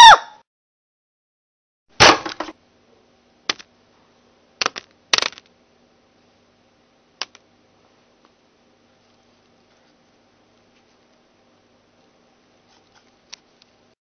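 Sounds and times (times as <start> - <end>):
faint low hum: 2.3 - 14.0
small hard objects clattering: 4.6 - 5.5.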